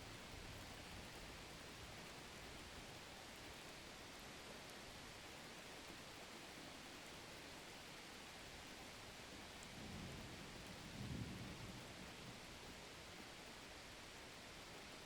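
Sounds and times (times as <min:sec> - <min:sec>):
faint rain hiss: 0:00.0 - 0:15.0.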